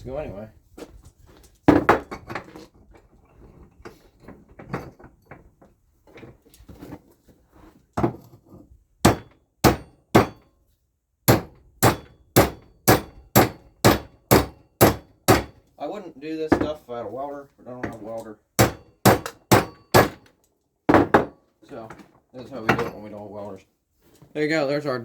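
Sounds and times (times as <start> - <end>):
hammer striking pipe: 9.1 - 10.4, 11.3 - 15.6, 18.6 - 20.2.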